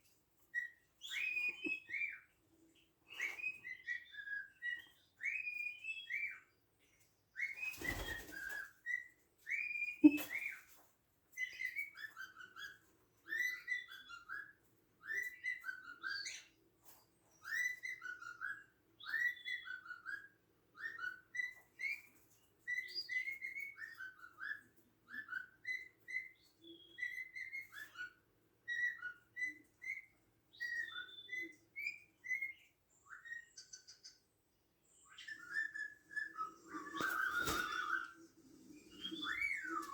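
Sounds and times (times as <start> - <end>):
cockatiel whistling: 11.4 - 16.5, 22.7 - 34.1, 35.0 - 39.9.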